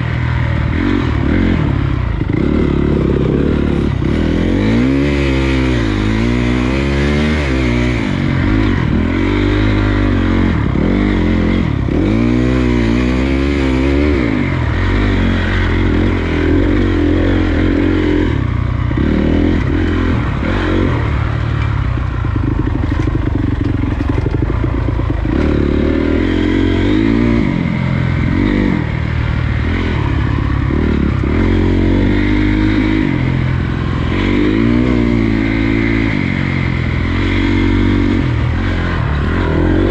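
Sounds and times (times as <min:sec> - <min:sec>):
dirt bike engine revving: 0:00.0 - 0:39.9
bike rattling: 0:18.8 - 0:27.9.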